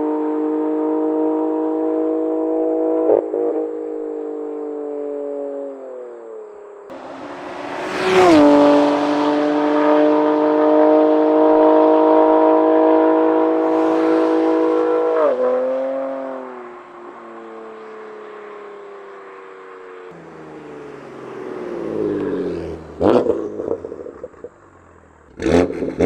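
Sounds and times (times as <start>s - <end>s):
car engine driving by: 6.9s - 25.7s.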